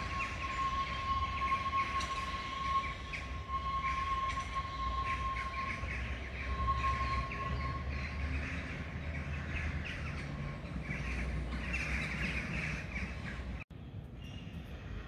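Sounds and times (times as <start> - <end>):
thin steady whine: 0.0 - 7.9.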